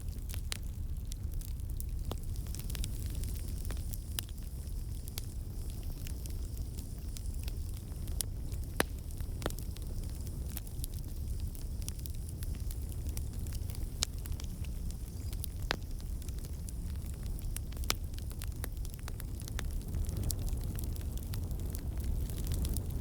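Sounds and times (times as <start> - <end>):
campfire flames rumbling: 0.0 - 23.0
fire crackles and pops: 0.0 - 23.0.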